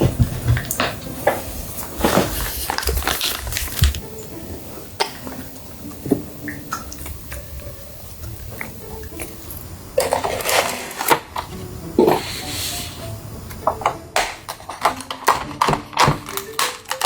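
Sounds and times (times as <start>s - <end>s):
wet chewing: 5.0s - 10.5s.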